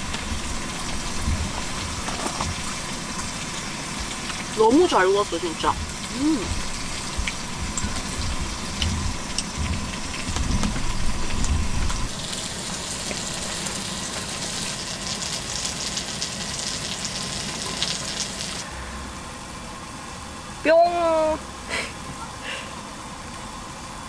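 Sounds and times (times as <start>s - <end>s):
food sizzling on a griddle: 0.0s - 18.7s.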